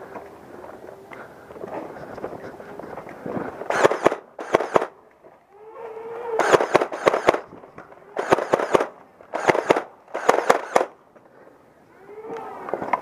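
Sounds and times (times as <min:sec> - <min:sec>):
motor hum: 0:03.3 - 0:11.0
toy blaster rapid clacking shots: 0:03.7 - 0:04.9, 0:06.4 - 0:07.5, 0:08.2 - 0:10.9.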